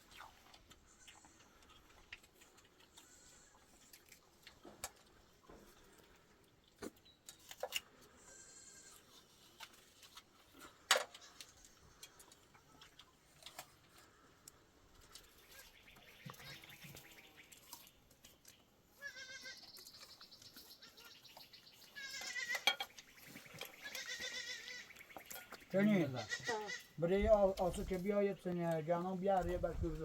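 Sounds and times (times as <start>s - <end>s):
goats bleating: 19.0s - 19.6s, 21.9s - 22.7s, 23.8s - 24.9s, 25.8s - 27.0s.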